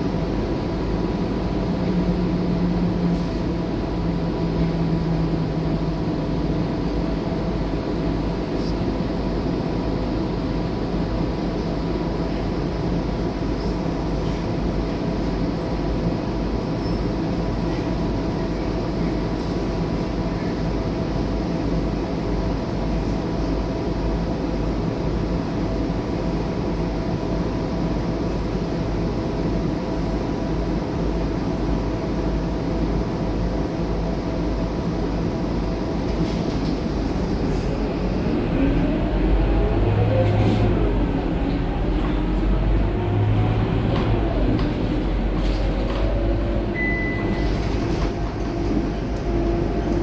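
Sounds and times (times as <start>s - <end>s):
bus engine droning: 0.0s - 50.0s
rising whine: 36.9s - 47.0s.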